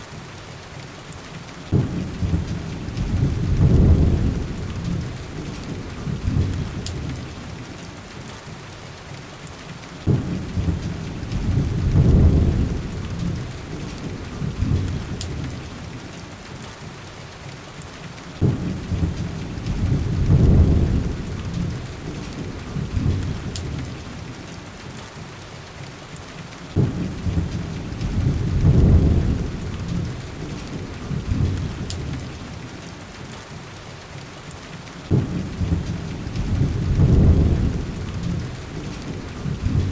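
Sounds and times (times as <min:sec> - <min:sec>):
heavy rain falling: 0:00.0 - 0:39.9
deep thunder rumbles: 0:01.7 - 0:07.6, 0:10.0 - 0:16.0, 0:18.4 - 0:24.3, 0:26.7 - 0:32.7, 0:35.1 - 0:39.9.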